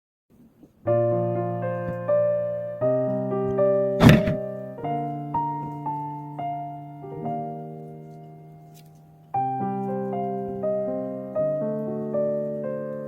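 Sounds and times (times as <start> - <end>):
gentle piano music: 0.8 - 13.0
thud: 4.0 - 4.4.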